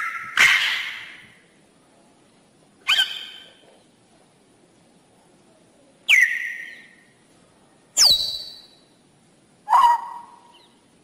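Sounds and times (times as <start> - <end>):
loud bird calls: 0.0 - 1.4, 2.8 - 3.6, 6.1 - 7.1, 9.7 - 10.9.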